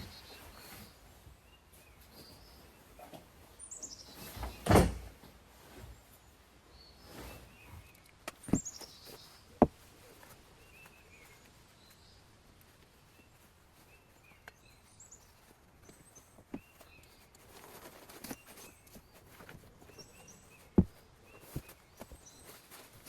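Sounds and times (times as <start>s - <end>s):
small birds chirping: 0.0s - 23.0s
handling thumps and knocks: 4.2s - 6.0s, 8.2s - 10.4s, 15.8s - 23.0s.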